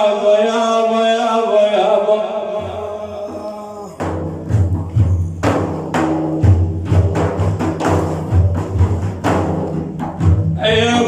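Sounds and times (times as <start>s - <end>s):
frame drums beating: 2.6s - 11.0s.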